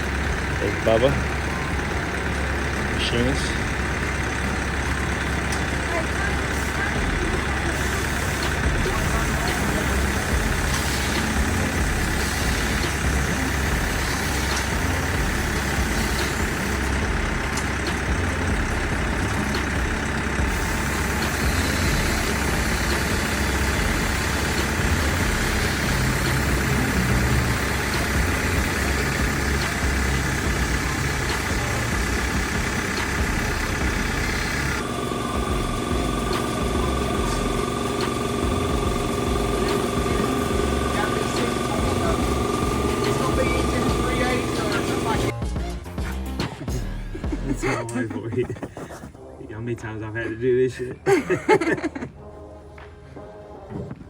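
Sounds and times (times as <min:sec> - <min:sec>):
steady tones: 0:00.0 - 0:50.9
truck engine idling: 0:00.0 - 0:54.0.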